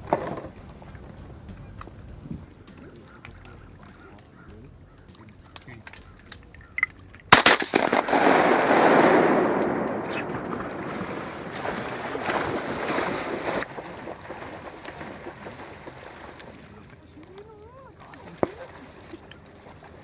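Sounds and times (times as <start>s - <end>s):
water rushing and splashing: 6.6s - 20.0s.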